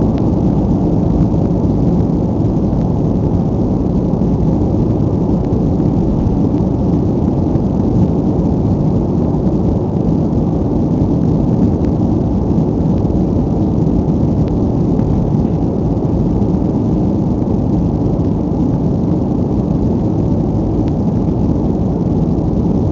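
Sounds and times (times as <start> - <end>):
jet engines roaring at takeoff: 0.0 - 22.9.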